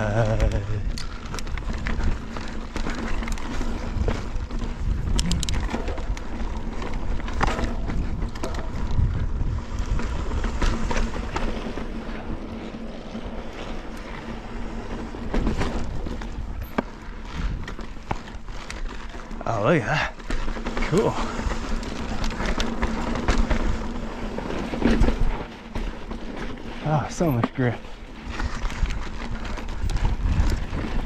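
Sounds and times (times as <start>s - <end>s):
wind rumble on microphone: 0.0s - 19.2s, 28.0s - 31.0s
bike rattling clicks and knocks: 0.0s - 31.0s
bike tires rolling on rock: 0.0s - 31.0s.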